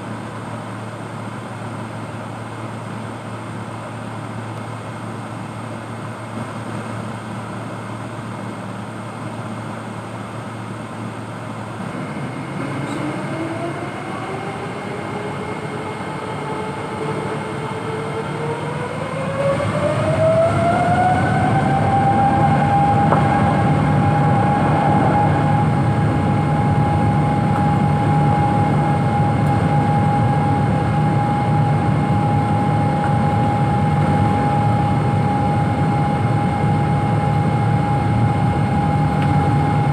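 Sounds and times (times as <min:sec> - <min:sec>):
jet engines spooling up: 0:11.8 - 0:39.9.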